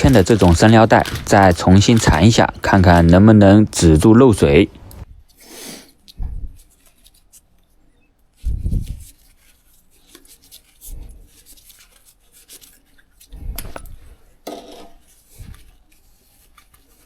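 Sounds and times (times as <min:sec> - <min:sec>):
tape rubbing and clicking: 0:00.0 - 0:03.9, 0:06.0 - 0:14.1.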